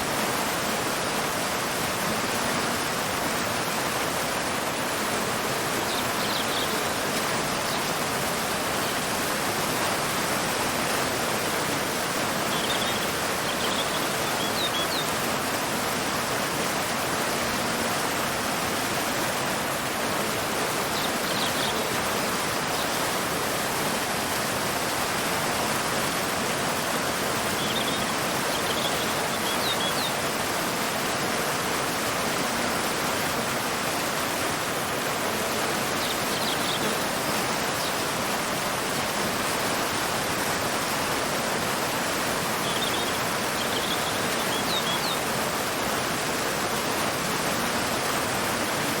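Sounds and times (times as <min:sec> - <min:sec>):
waterfall rushing: 0:00.0 - 0:49.0
bird chirping: 0:12.5 - 0:15.1, 0:27.6 - 0:30.2, 0:36.0 - 0:37.0, 0:42.6 - 0:45.2.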